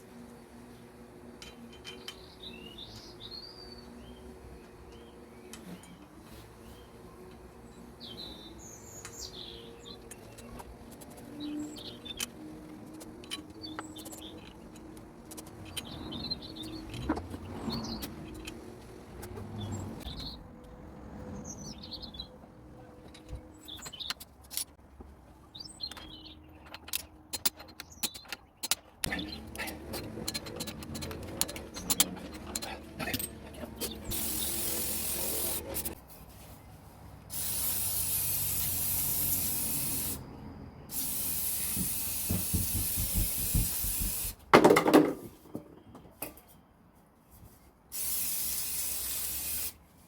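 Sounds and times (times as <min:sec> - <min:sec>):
small birds chirping: 0:01.6 - 0:20.7, 0:25.4 - 0:30.0, 0:30.7 - 0:36.0
sharp clicks and knocks: 0:25.9 - 0:34.2, 0:41.6 - 0:46.4.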